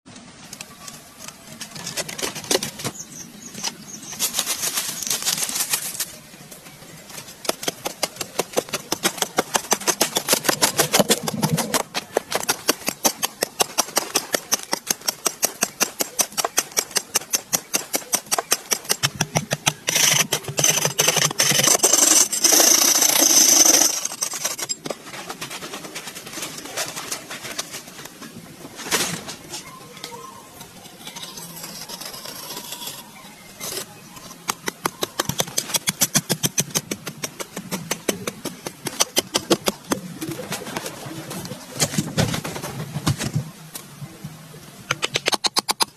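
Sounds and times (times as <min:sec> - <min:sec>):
rasping scraping: 0:07.1 - 0:28.2, 0:30.4 - 0:40.0
hand tool striking wood: 0:07.4 - 0:24.8.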